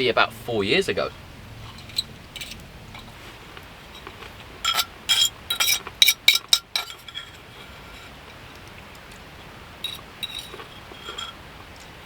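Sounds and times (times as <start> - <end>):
cutlery and dishes clinking: 4.0 - 8.2, 9.8 - 11.4.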